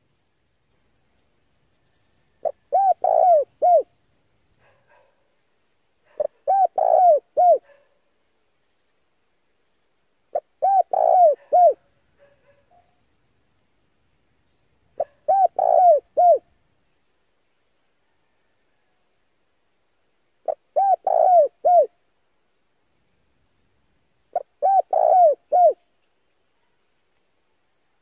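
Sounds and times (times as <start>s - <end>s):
dove cooing: 2.4s - 3.9s, 6.1s - 7.8s, 10.3s - 12.6s, 15.0s - 16.5s, 20.4s - 22.0s, 24.3s - 25.8s.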